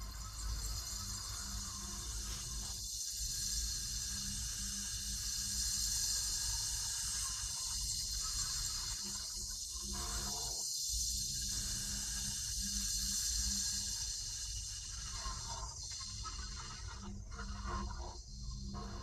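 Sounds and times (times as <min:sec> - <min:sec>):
rushing water-like hiss: 0:00.8 - 0:08.2.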